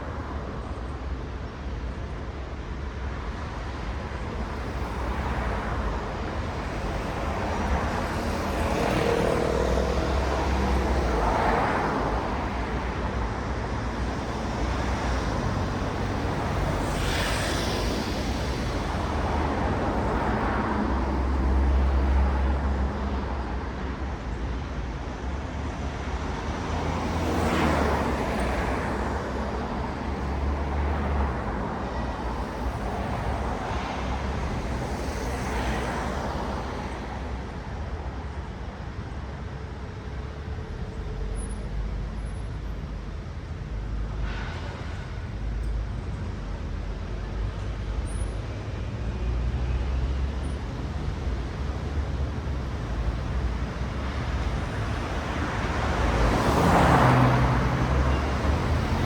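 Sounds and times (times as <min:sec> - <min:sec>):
low rumble of road traffic: 0:00.0 - 0:59.0
cars passing: 0:04.1 - 0:39.4, 0:48.9 - 0:59.0.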